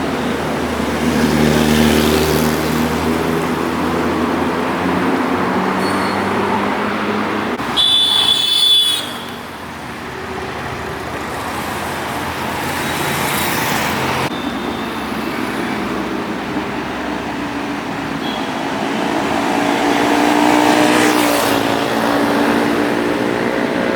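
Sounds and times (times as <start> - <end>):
road traffic passing: 0.0 - 23.9
vehicle horn blaring: 7.6 - 9.6, 18.2 - 18.8.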